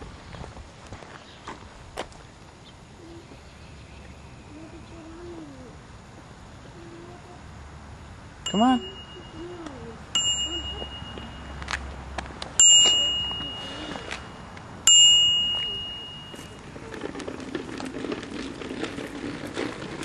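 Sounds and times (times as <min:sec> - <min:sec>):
bicycle bell ringing: 0:08.4 - 0:11.8, 0:12.6 - 0:16.7.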